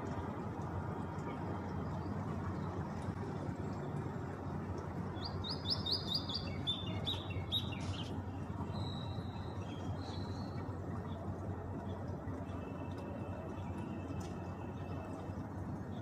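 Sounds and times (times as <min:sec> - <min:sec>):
steady low background noise: 0:00.0 - 0:16.0.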